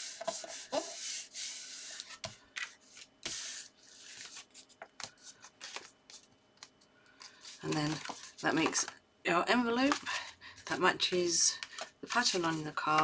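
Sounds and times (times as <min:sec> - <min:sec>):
paper rustling and rubbing: 0:00.0 - 0:06.4, 0:07.2 - 0:08.6, 0:11.5 - 0:13.0.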